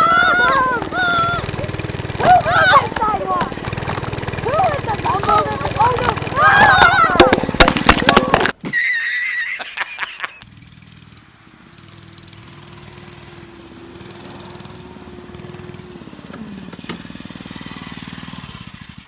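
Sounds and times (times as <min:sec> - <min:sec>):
small engine running: 0:00.0 - 0:08.5, 0:10.4 - 0:19.0.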